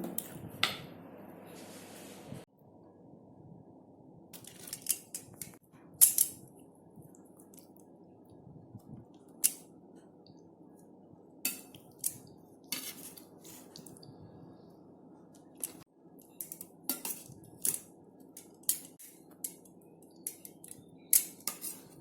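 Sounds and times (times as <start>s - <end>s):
utensil clinking against cookware: 16.4s - 17.8s.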